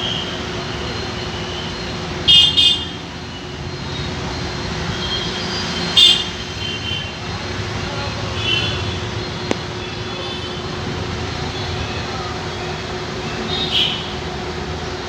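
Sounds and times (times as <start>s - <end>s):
road traffic noise: 0.0s - 15.0s
vehicle horns honking: 2.2s - 3.1s, 4.8s - 7.3s, 8.3s - 9.1s, 13.3s - 14.2s.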